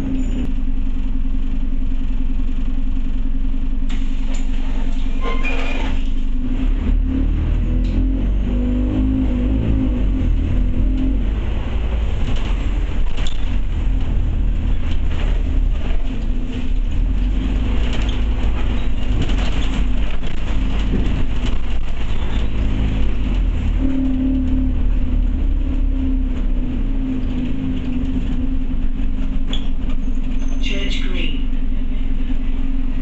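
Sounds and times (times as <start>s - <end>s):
bus engine and road rumble: 0.0s - 33.0s
bodywork rattling: 12.1s - 23.6s.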